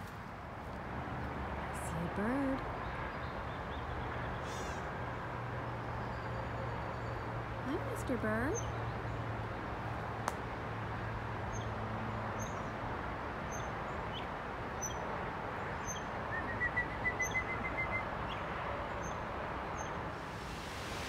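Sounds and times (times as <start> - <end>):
bird chirping: 15.7 - 19.2
steady background hiss: 20.2 - 21.0.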